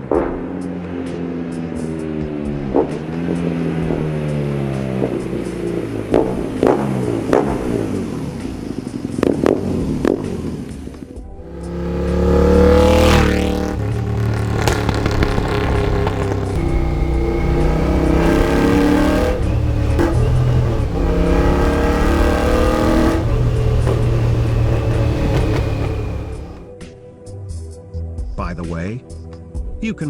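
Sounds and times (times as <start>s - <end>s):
motorcycle engine revving: 11.4s - 26.7s
sharp exhaust cracks: 11.4s - 26.7s.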